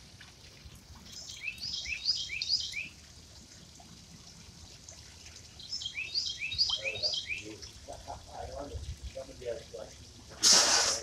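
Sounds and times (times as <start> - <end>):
bird chirping: 1.0 - 3.0, 5.6 - 7.8
fish splashing in water: 10.4 - 11.0.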